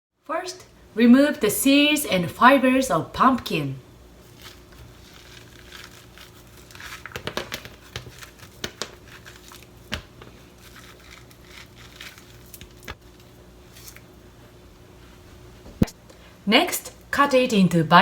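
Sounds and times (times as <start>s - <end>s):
scraping pumpkin seeds: 4.2s - 14.1s.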